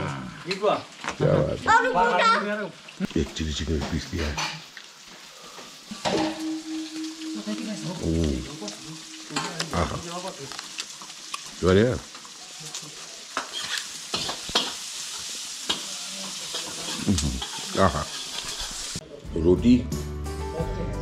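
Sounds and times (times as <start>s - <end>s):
food sizzling in a pan: 0.0s - 19.3s
man humming: 7.4s - 10.1s, 17.0s - 17.4s.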